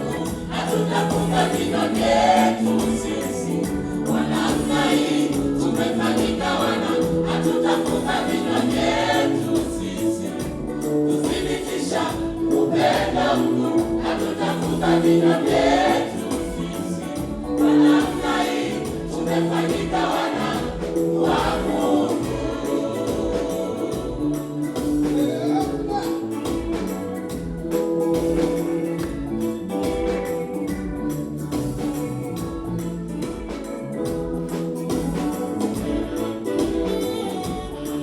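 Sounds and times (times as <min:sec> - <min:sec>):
steady beat: 0:00.0 - 0:32.7
choir singing gospel song: 0:00.0 - 0:38.0.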